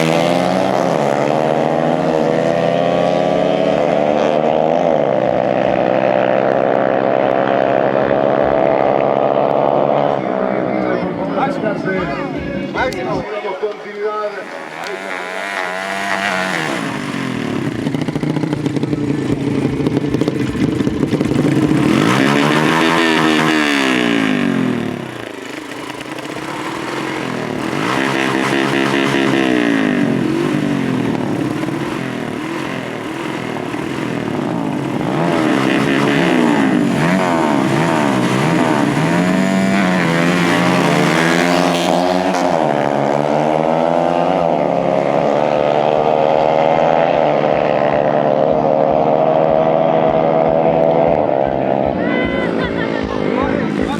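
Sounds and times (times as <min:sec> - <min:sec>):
dirt bike engines revving: 0:00.0 - 0:53.9.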